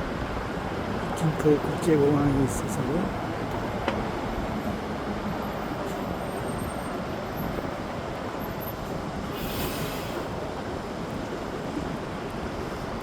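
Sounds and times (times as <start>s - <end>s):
city street traffic rumble: 0.0s - 13.0s
short hiss: 9.4s - 10.3s.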